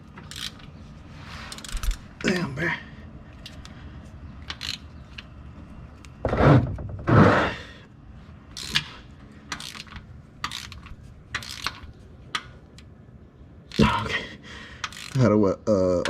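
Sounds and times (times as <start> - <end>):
socket ratchet clicking: 0.2 - 0.7, 4.4 - 5.3, 8.6 - 8.9, 9.5 - 12.9, 14.8 - 15.2.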